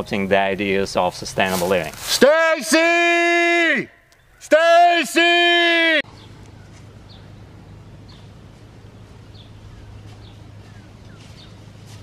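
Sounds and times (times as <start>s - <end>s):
steady low hum: 6.1s - 12.0s.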